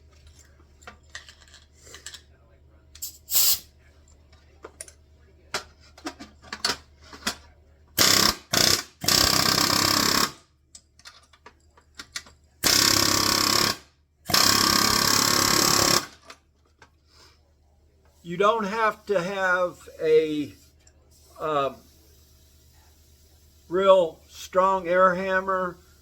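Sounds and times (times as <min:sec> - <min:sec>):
pneumatic air hammer bursts: 0:03.0 - 0:03.7, 0:08.0 - 0:10.4, 0:12.6 - 0:16.2.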